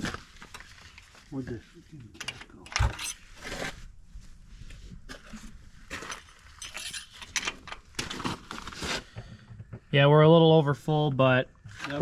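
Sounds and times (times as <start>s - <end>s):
metal dipstick clinking and scraping: 2.2s - 3.3s, 6.0s - 7.8s.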